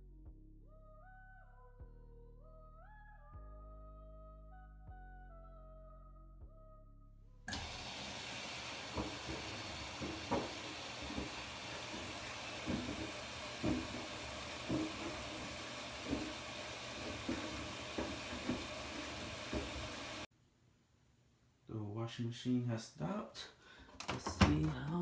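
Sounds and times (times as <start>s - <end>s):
washing machine water and drum: 7.5s - 20.3s
shoes thudding in drum: 8.9s - 20.0s.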